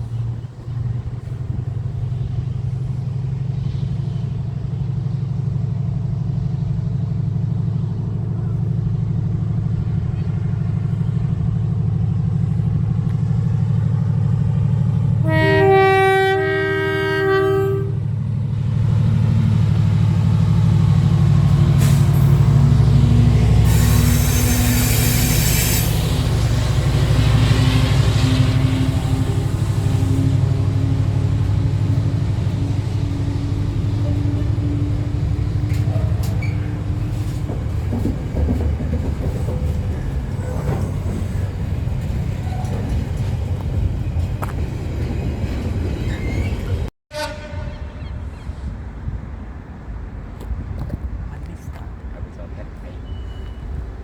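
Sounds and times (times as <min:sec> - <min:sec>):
train rumbling: 0:00.0 - 0:54.0
train two-tone horn: 0:15.2 - 0:18.1, 0:23.4 - 0:34.6, 0:47.1 - 0:48.7.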